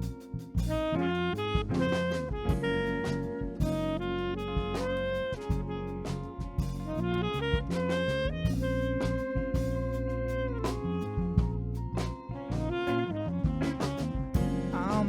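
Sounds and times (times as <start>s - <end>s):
bass: 0.0s - 15.0s
drums: 0.0s - 15.0s
saxophone: 0.0s - 15.0s
piano: 11.4s - 15.0s.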